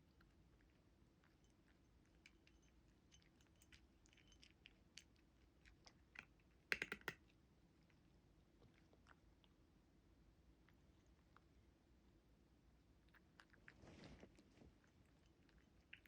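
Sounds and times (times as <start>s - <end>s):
cat crunching dry food: 0.2s - 7.2s.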